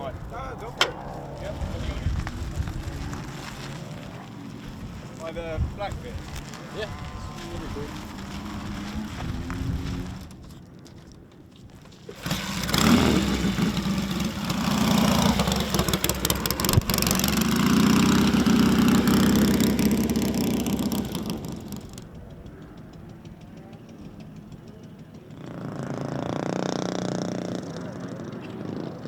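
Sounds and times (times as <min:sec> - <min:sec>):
motorcycle engine revving: 0:00.0 - 0:10.7, 0:12.0 - 0:29.0.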